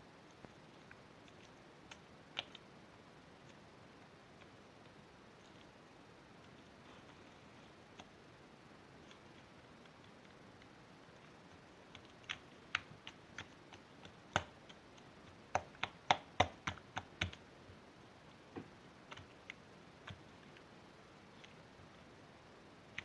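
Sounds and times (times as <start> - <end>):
sharp clicks and taps: 11.9 - 17.4.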